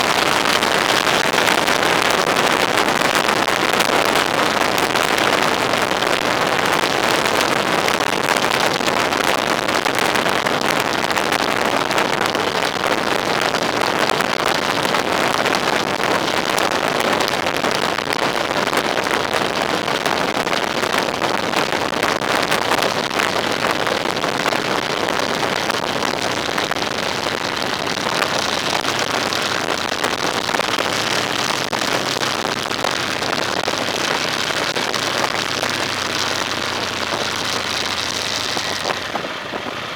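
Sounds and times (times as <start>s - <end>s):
wind and road noise: 0.0s - 39.9s
low engine hum: 34.4s - 39.9s.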